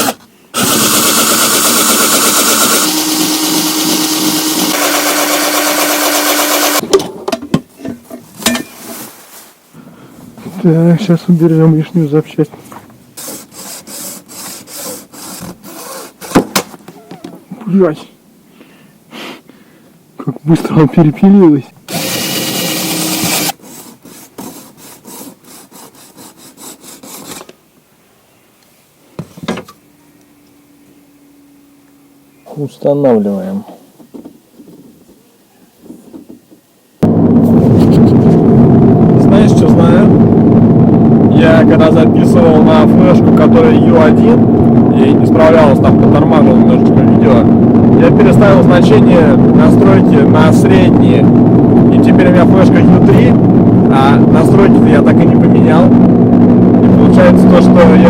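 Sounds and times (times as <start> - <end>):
electric drill boring plastic: 0.0 - 6.8, 21.9 - 23.6
power tool cutting plastic: 0.0 - 6.8, 13.2 - 16.4, 21.9 - 23.6
scraping strokes on plastic: 13.2 - 16.5, 22.5 - 27.5.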